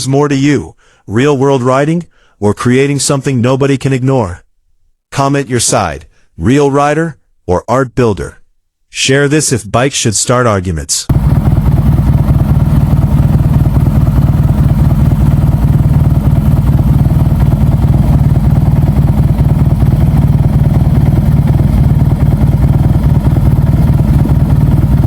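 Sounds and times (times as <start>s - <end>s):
motorcycle engine idling: 11.1s - 25.0s.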